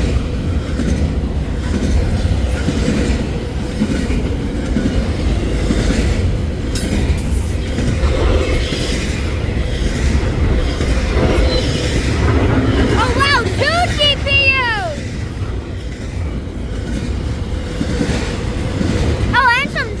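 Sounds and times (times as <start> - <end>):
wheels clattering over rails: 0.0 - 14.3
freight train rumbling past: 0.0 - 20.0.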